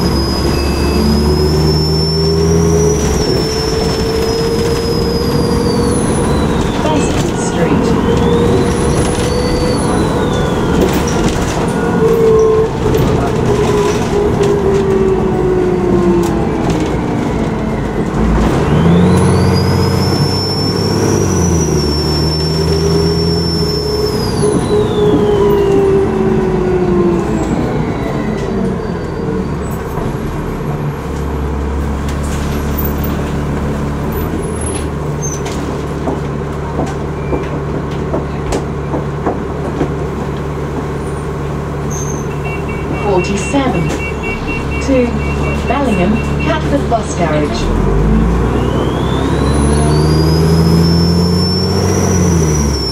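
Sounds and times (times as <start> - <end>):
turbocharger whistling: 0.0 - 11.9, 18.6 - 26.0, 48.2 - 52.9
bus diesel engine: 0.0 - 52.9.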